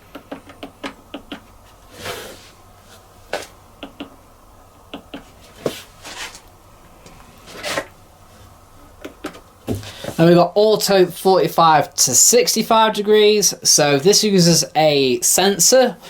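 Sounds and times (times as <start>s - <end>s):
hands rustling: 5.0s - 8.5s.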